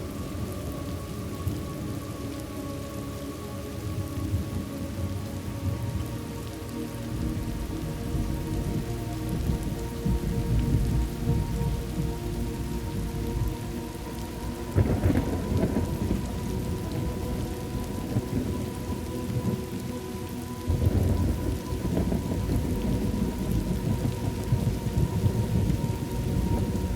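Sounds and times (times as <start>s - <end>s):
steady rain: 0.0s - 26.9s
rolling thunder: 14.7s - 19.8s, 20.6s - 26.9s.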